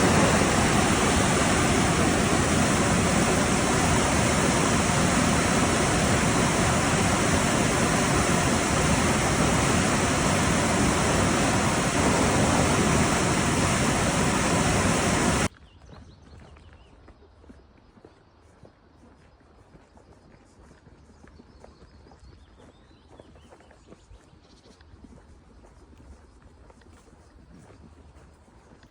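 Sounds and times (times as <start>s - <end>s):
fast-flowing water rushing: 0.0s - 15.5s.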